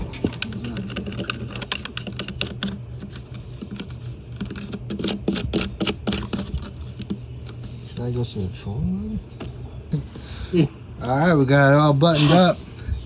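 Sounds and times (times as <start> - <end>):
hand tools clicking and tapping: 0.0 - 7.2.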